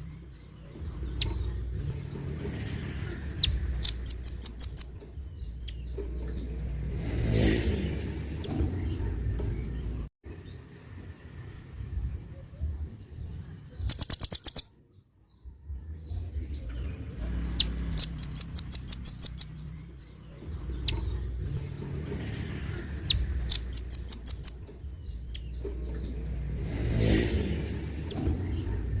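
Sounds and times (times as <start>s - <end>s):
bird harsh trills: 3.4s - 4.9s, 13.8s - 14.7s, 17.6s - 19.6s, 23.1s - 24.6s.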